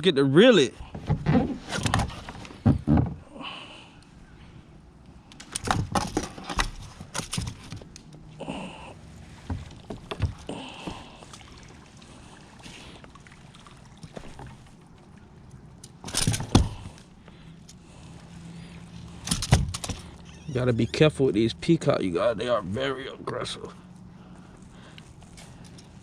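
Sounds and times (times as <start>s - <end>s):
water sloshing: 9.0s - 20.4s.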